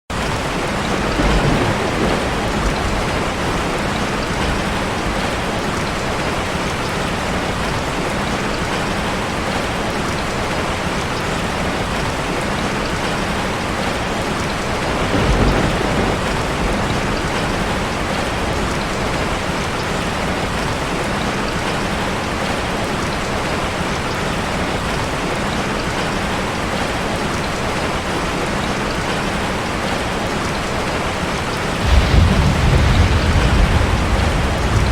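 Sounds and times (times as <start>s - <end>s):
waterfall rushing: 18.8s - 34.9s.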